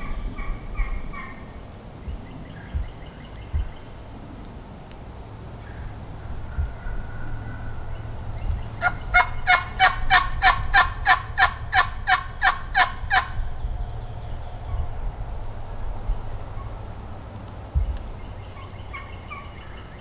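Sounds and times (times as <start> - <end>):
wild turkey yelping: 0.0 - 4.0, 5.6 - 13.4, 18.0 - 20.0
steady low rumble: 0.0 - 20.0.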